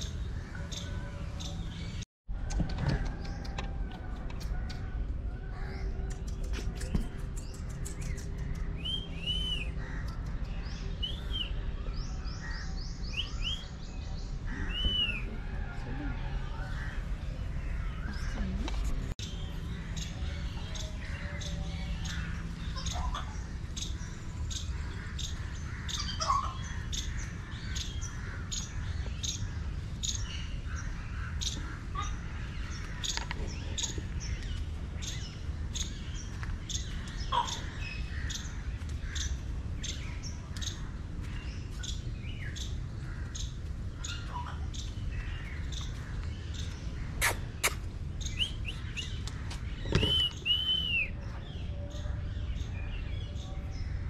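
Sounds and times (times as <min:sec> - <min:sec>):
birds chirping: 0:02.9 - 0:54.0
whistled bird call: 0:08.8 - 0:09.8, 0:14.6 - 0:15.3, 0:47.2 - 0:48.8, 0:49.9 - 0:51.2.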